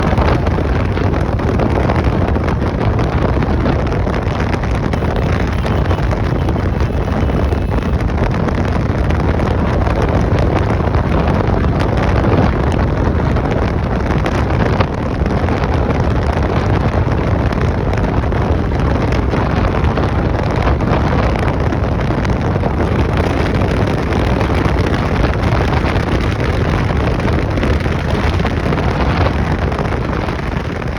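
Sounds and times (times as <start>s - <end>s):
motorcycle engine: 0.0s - 14.4s
wind noise on microphone: 0.0s - 30.9s.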